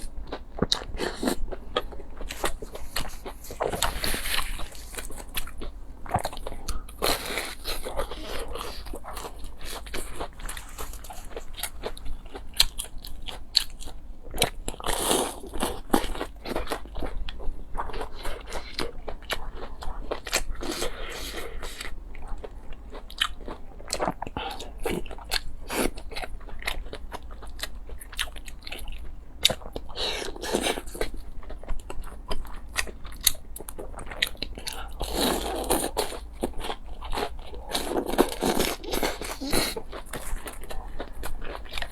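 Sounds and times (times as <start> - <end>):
crunchy bites and chewing: 17.8 - 41.9.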